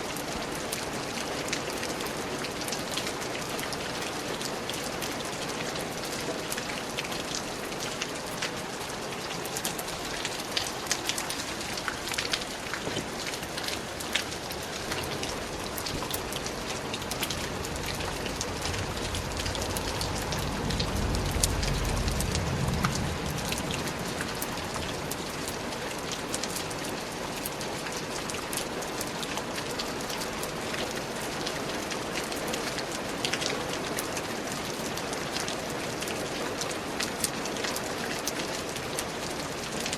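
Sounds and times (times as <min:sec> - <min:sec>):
rain pattering: 0:00.0 - 0:39.9
low rumble: 0:14.9 - 0:26.2.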